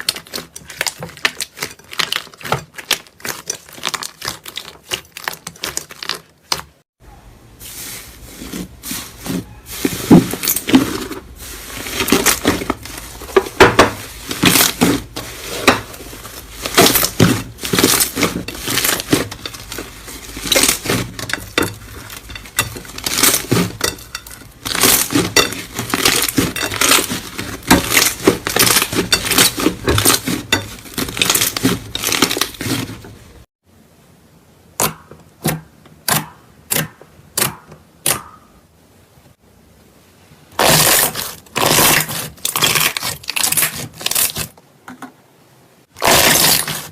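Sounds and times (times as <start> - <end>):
slime crackling and popping: 0.0 - 6.6.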